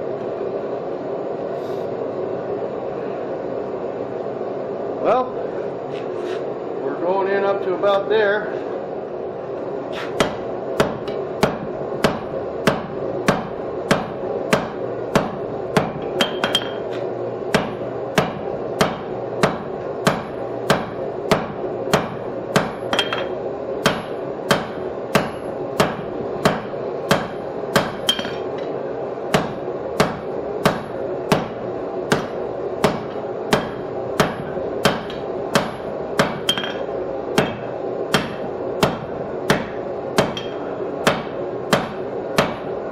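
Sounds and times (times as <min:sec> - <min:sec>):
steady background hum: 0:00.0 - 0:42.9
hammer striking hot steel on anvil: 0:10.0 - 0:28.7, 0:29.3 - 0:42.7.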